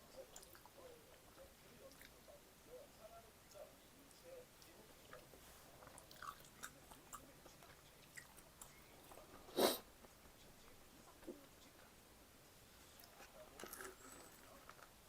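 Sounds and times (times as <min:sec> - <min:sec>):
person chewing food: 0:05.8 - 0:09.2.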